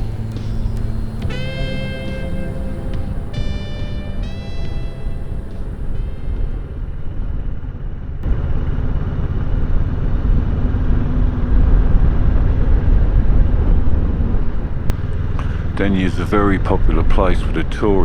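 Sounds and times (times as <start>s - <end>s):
faint background music: 0.0s - 7.6s
motorcycle engine rumbling: 0.0s - 18.0s
wind noise: 0.0s - 18.0s.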